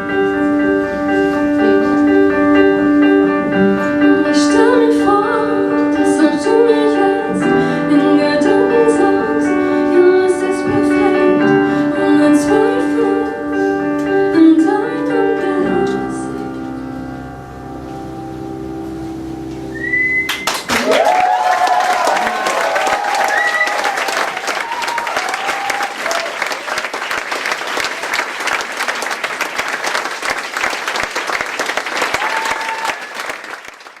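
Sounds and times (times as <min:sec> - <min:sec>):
wordless melody line: 0:00.0 - 0:20.5
piano chords: 0:00.0 - 0:31.9
whistle-like high tone: 0:19.7 - 0:20.5
audience applauding: 0:19.8 - 0:34.0.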